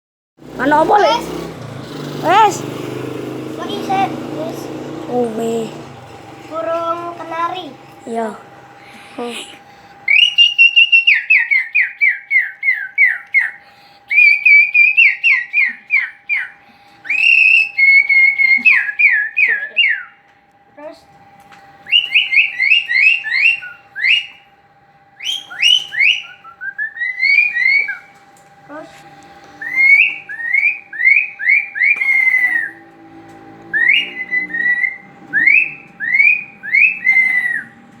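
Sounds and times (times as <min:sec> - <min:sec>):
canary singing: 0:00.4 - 0:20.3, 0:21.6 - 0:38.0
faint steady hum: 0:03.6 - 0:38.0
loud whistled notes: 0:10.0 - 0:20.3, 0:21.7 - 0:28.2, 0:29.4 - 0:38.0.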